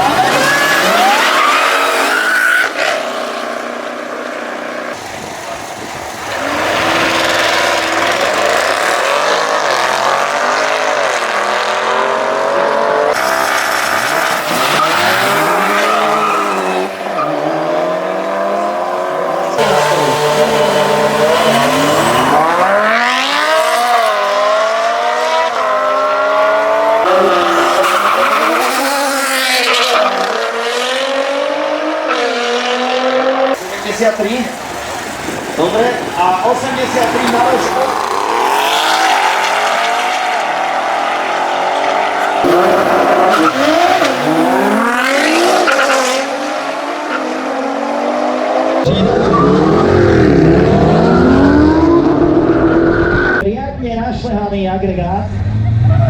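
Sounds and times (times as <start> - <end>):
car engines revving in acceleration: 0.0 - 53.4.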